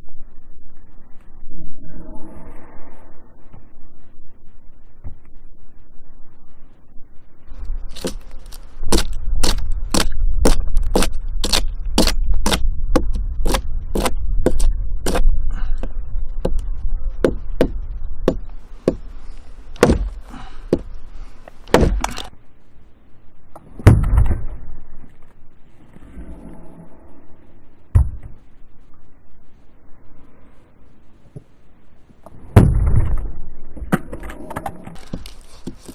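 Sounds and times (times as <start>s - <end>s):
blade chopping firewood: 7.9s - 15.3s, 19.8s - 20.9s, 21.6s - 22.3s
heavy deep thud: 19.8s - 20.9s, 21.6s - 22.2s, 23.8s - 24.6s, 32.5s - 33.4s.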